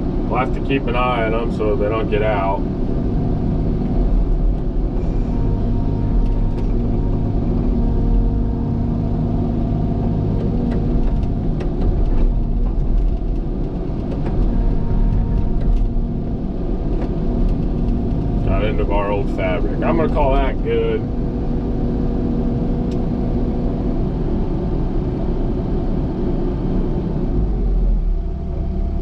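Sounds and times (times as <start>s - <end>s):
heavy machine diesel engine running: 0.0s - 29.0s.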